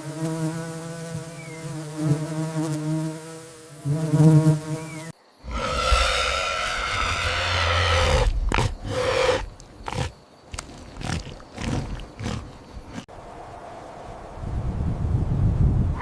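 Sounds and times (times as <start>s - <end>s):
animal calling: 5.4s - 13.1s.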